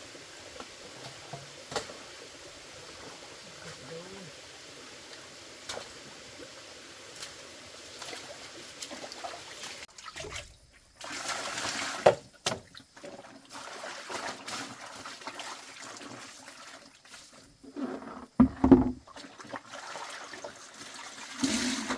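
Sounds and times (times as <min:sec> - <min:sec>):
water trickling and splashing: 0:00.0 - 0:21.9
small knocks: 0:18.3 - 0:19.0.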